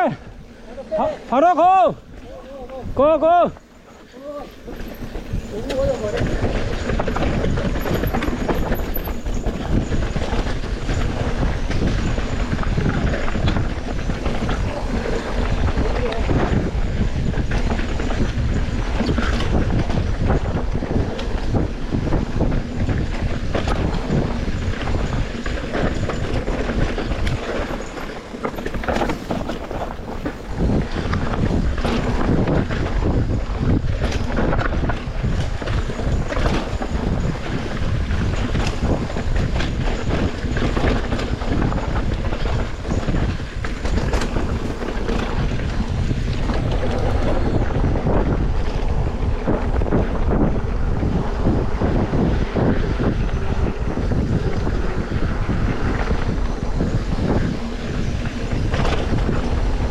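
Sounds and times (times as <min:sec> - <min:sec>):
wind rumbling on microphone: 0:00.0 - 0:59.9
knocks and rustles of movement: 0:03.7 - 0:50.5.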